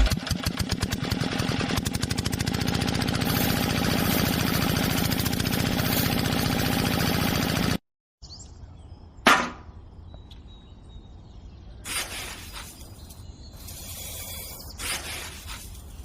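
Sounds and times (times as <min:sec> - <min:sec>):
small motor running: 0:00.0 - 0:07.8, 0:11.9 - 0:16.0
sharp clatter: 0:11.9 - 0:16.0.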